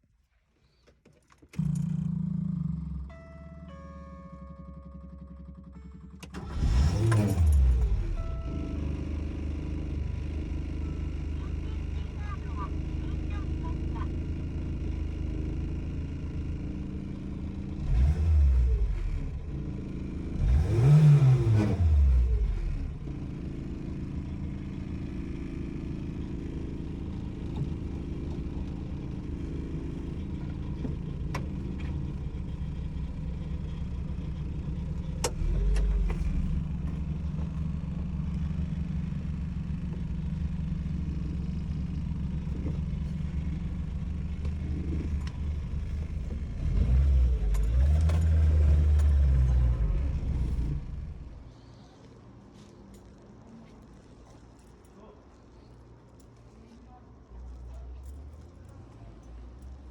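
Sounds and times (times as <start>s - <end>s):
car engine revving: 1.5s - 12.4s, 16.2s - 51.5s.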